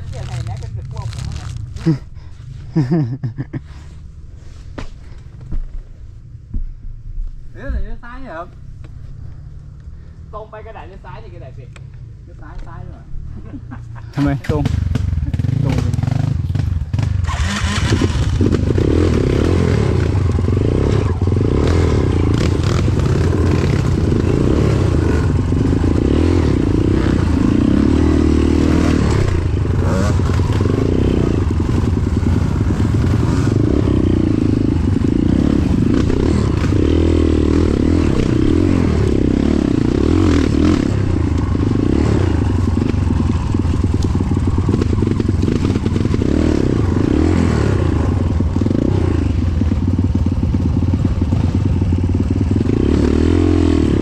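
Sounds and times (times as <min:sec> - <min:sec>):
motorcycle engine revving: 0:14.2 - 0:54.0.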